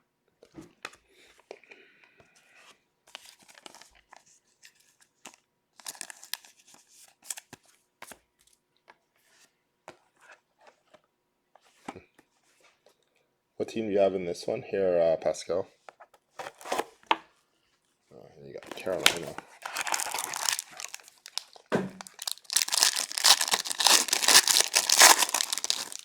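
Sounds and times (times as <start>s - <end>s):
wrapper tearing and crinkling: 5.8s - 6.4s, 18.7s - 26.0s.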